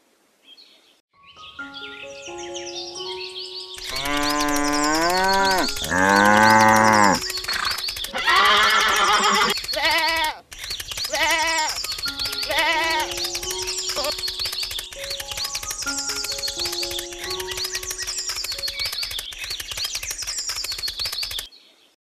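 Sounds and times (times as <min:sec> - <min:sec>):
background music: 0:01.2 - 0:07.9, 0:11.9 - 0:19.0
cattle mooing: 0:03.9 - 0:07.7
wavering bleats: 0:03.9 - 0:10.4, 0:12.5 - 0:13.1.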